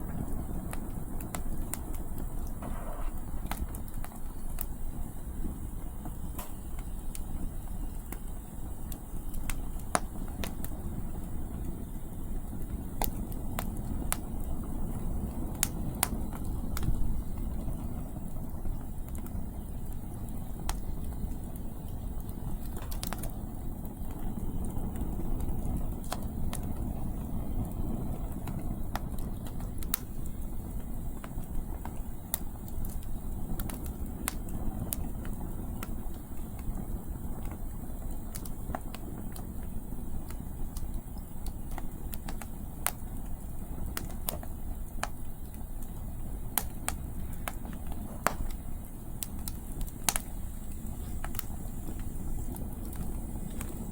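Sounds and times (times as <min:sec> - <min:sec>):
low rumble of wind: 0:00.0 - 0:53.9
wood fire crackling: 0:00.0 - 0:53.9
sharp pops: 0:01.2 - 0:04.7, 0:46.5 - 0:53.9.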